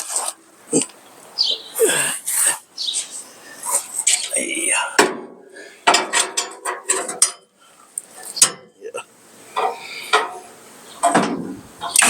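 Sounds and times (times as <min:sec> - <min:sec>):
wrench clinking on metal bolts: 0:05.9 - 0:07.5.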